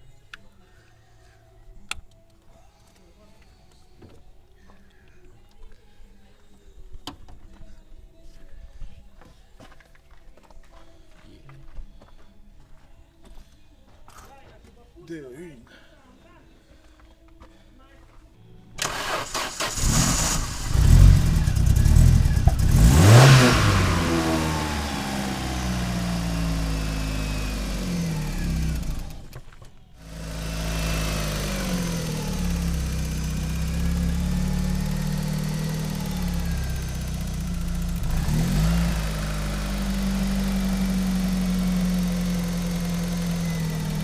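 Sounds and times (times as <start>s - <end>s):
car engine cranking and idling: 18.8s - 44.0s.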